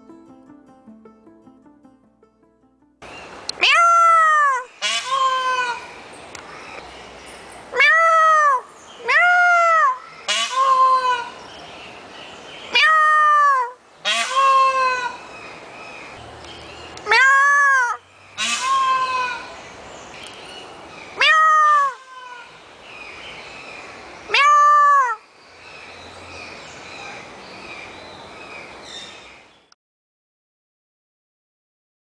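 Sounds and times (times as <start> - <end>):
peacock calling: 3.5 - 6.8, 7.8 - 11.5, 12.7 - 23.2.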